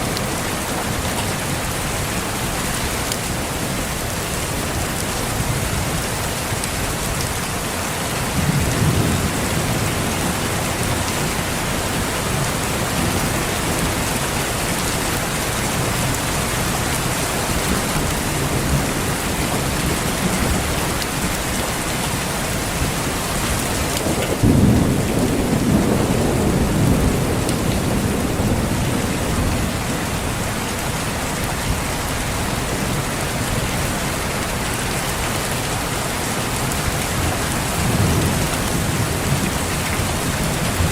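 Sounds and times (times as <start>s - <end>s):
steady rain falling: 0.0s - 40.9s
thunder rumbling: 8.2s - 14.2s, 23.5s - 31.0s, 37.2s - 40.9s.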